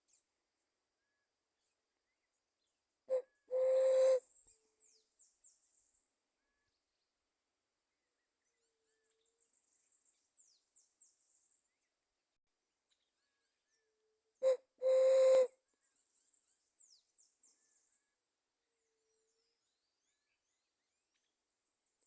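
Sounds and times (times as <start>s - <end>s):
dove cooing: 3.1s - 4.2s.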